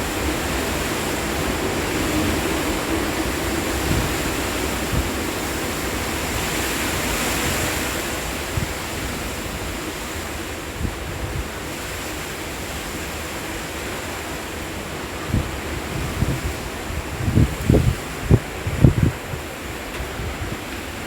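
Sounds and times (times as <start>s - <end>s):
gusty wind rushing: 0.0s - 21.0s
wind buffeting microphone: 0.0s - 21.0s.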